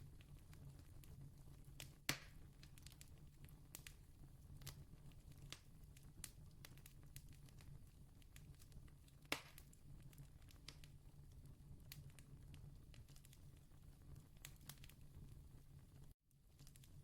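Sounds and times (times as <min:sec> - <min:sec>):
distant campfire crackling: 0:00.0 - 0:17.0
sharp fire pops: 0:01.8 - 0:04.0, 0:08.3 - 0:10.9.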